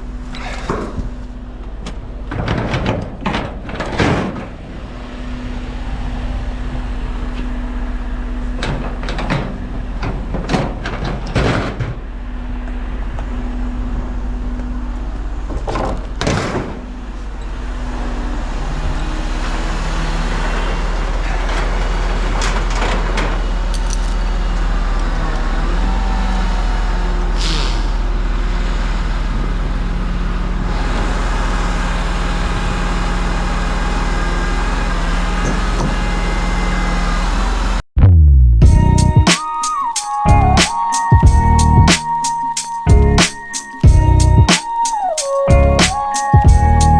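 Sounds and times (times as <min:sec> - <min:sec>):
truck diesel engine running: 0:28.0 - 0:39.3, 0:43.8 - 0:44.5, 0:45.5 - 0:46.9.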